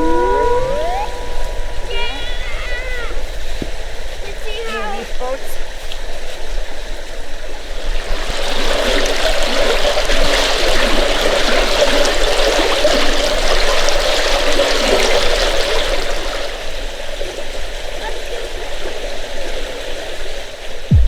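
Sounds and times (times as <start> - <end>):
small stream running water: 1.8 - 20.9.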